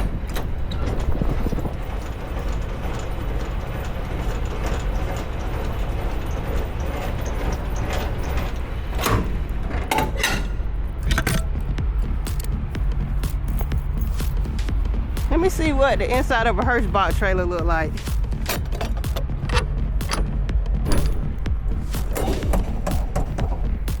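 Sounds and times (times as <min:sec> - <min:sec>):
short clicks and rattles: 0:00.0 - 0:11.7, 0:17.9 - 0:23.5
truck diesel engine rumbling: 0:00.0 - 0:24.0.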